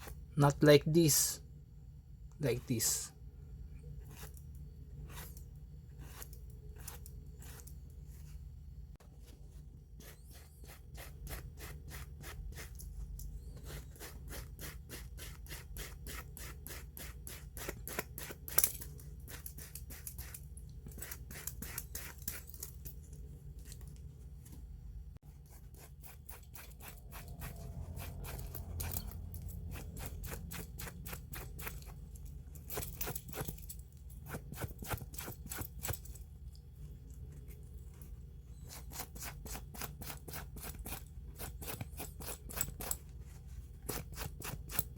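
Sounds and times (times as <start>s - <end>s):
rubbing strokes on a watch: 5.0s - 8.5s, 10.0s - 12.8s, 13.4s - 18.4s, 25.3s - 32.0s.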